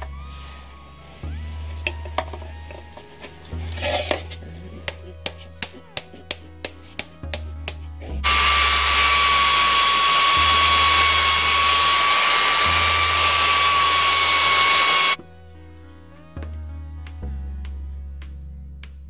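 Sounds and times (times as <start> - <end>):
belt sander motor whining: 8.2 - 15.2.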